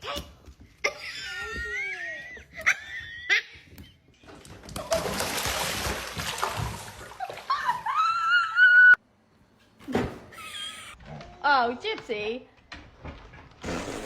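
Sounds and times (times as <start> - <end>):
water splashing: 4.7 - 8.0.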